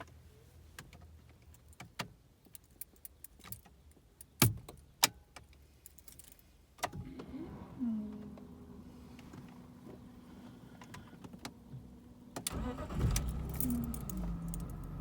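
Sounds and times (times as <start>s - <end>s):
car keys jangling in ignition: 12.4s - 15.0s.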